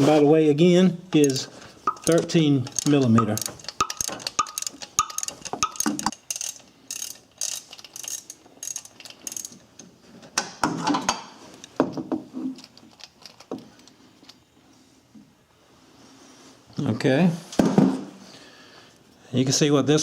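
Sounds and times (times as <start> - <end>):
ratchet wrench clicking: 1.2 - 9.6
metallic knocks: 1.9 - 6.2.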